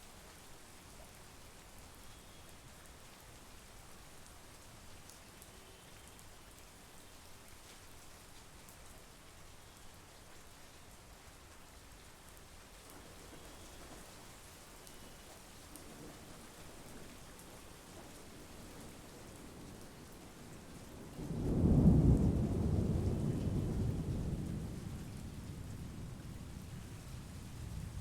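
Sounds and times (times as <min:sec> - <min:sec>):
rain falling: 0:00.0 - 0:28.0
thunder clap with deep rumble: 0:17.9 - 0:28.0.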